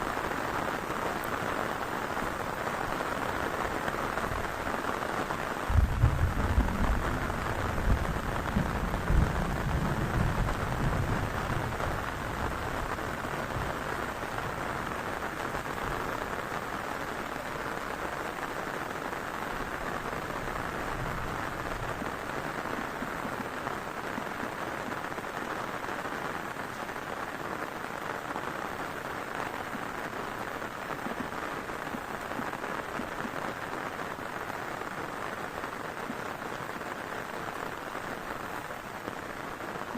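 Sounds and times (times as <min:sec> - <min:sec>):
heavy rain falling: 0:00.0 - 0:39.9
low rumble of thunder: 0:05.7 - 0:14.0.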